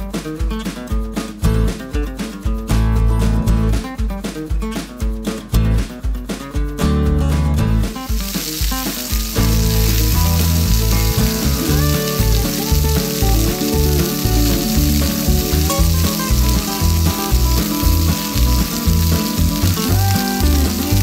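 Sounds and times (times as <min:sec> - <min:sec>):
background music: 0:00.0 - 0:21.0
hot oil sizzling: 0:07.8 - 0:21.0.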